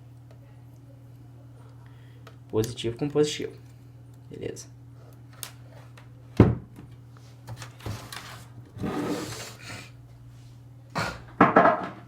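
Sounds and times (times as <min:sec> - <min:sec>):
steady low hum: 0:00.0 - 0:12.0
rubbing scrape: 0:08.3 - 0:09.6.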